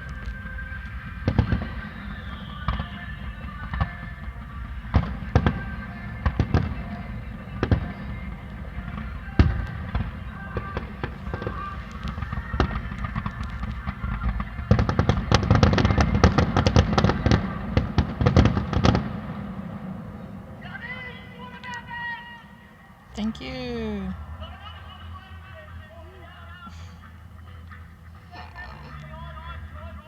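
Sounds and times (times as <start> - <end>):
fireworks bangs and crackles: 0.0 - 22.1.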